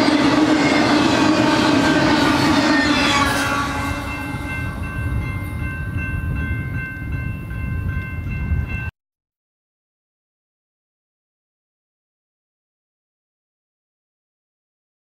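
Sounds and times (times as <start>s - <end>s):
crossing bell ringing: 0.0s - 8.9s
freight train rumble: 0.0s - 8.9s.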